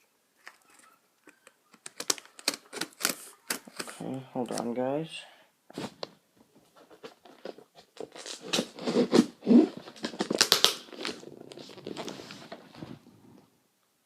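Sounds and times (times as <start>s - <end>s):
packing rustling and crinkling: 5.8s - 13.0s
cardboard box tearing: 7.3s - 12.5s.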